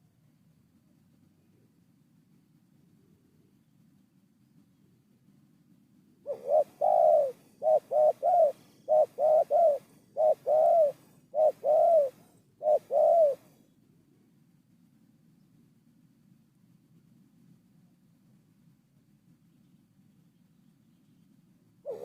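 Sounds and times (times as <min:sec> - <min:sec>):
dove cooing: 0:06.2 - 0:13.6.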